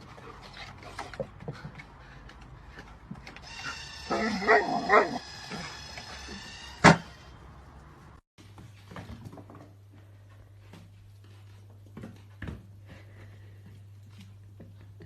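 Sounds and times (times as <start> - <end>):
dog barking: 4.1 - 5.2.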